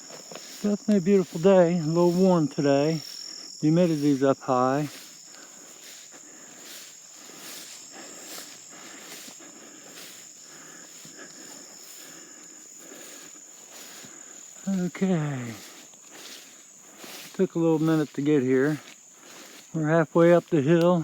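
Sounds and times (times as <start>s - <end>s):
footsteps on forest floor: 0.0s - 21.0s
insects droning: 0.0s - 21.0s.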